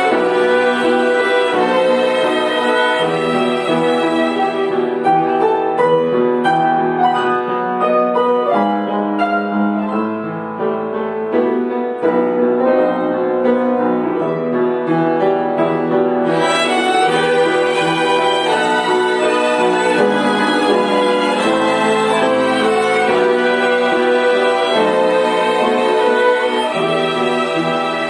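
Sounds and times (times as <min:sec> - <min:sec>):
violin ensemble: 0:00.0 - 0:07.3, 0:16.2 - 0:28.0
piano accompaniment: 0:00.0 - 0:28.0.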